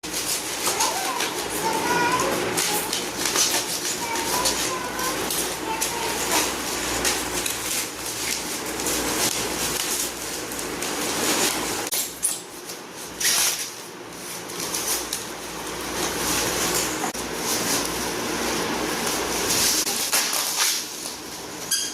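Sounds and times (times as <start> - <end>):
packaging rustling: 0.0 - 11.9.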